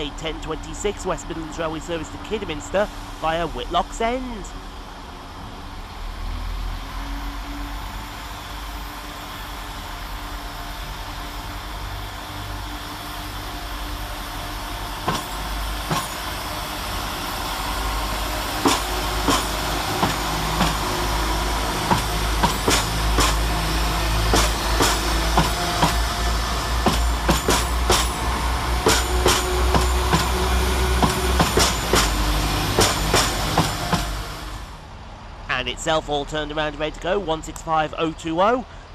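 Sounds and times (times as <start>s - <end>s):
diesel train engine rumble: 0.0s - 38.9s
wheels clicking over rail joints: 18.6s - 20.9s, 21.8s - 23.6s, 24.2s - 26.1s, 26.8s - 28.2s, 28.8s - 30.4s, 31.0s - 34.1s.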